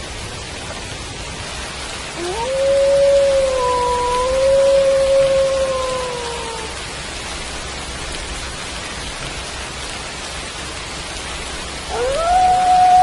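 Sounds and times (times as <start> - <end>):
steady rain falling: 0.0 - 13.0
wolf howling: 2.2 - 6.8, 11.9 - 13.0.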